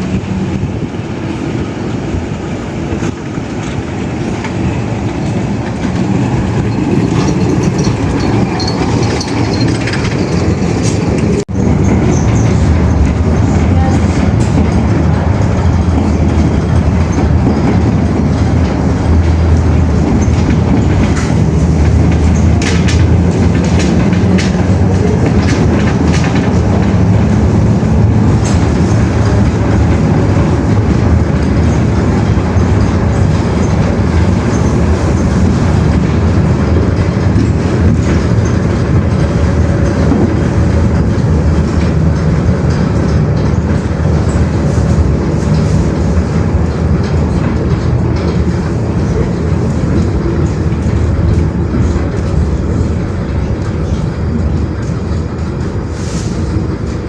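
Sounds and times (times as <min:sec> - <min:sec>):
loud steady rumbling: 0:00.0 - 0:57.0.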